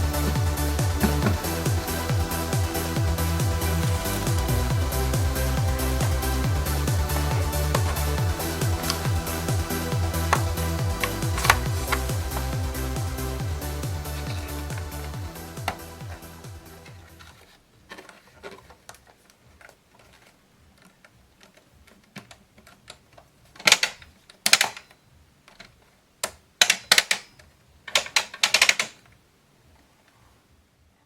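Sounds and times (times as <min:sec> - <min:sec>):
handling clicks and clatters: 0:00.0 - 0:12.6, 0:14.0 - 0:29.2.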